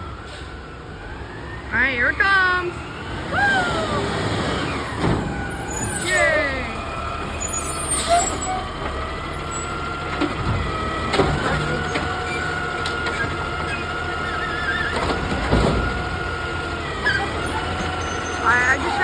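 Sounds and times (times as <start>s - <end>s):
garbage truck engine rumbling: 0.0s - 19.0s
high engine whine: 18.4s - 19.0s.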